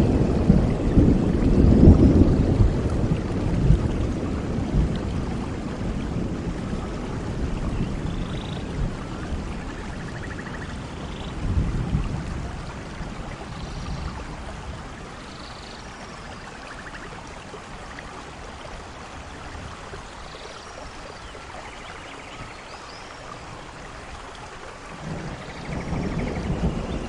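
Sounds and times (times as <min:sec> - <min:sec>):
low thunder rumble: 0:00.0 - 0:16.0, 0:24.8 - 0:27.0
steady rain: 0:00.0 - 0:27.0.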